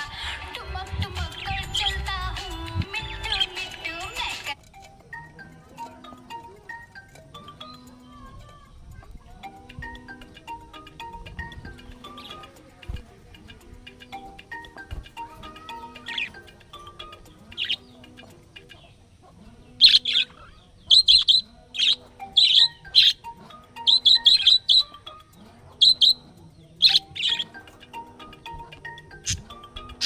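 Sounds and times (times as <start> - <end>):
quiet background music: 0.0 - 30.0
parrot chirping: 2.9 - 3.9, 19.8 - 25.2, 25.8 - 26.2, 26.8 - 27.7, 29.1 - 30.0.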